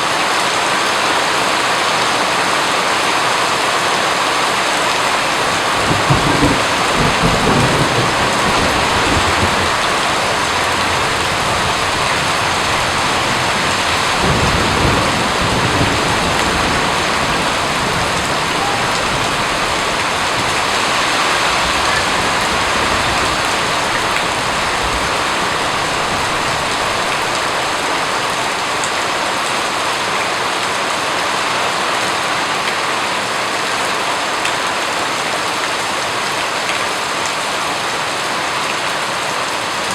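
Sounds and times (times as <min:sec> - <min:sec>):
dense rain falling: 0:00.0 - 0:39.9
thunder rumbling: 0:05.2 - 0:28.4.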